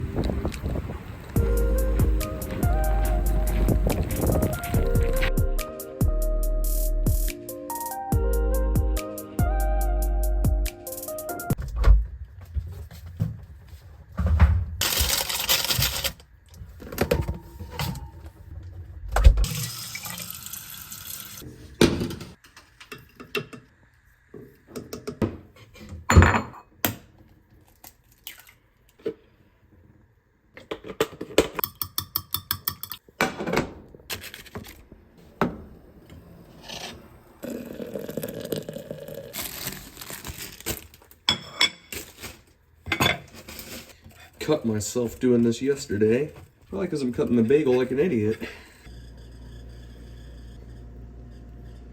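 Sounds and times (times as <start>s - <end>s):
dishes clattering: 26.0s - 26.7s, 42.9s - 43.5s.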